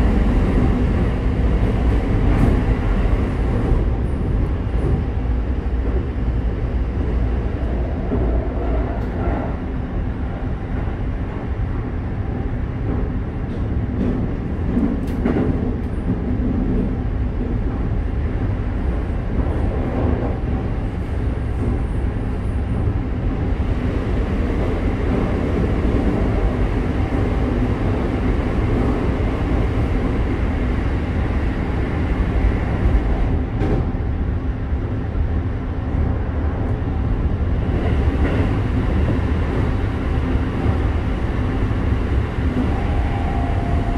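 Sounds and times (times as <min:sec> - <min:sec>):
train wheels rumbling on rail: 0:00.0 - 0:43.9.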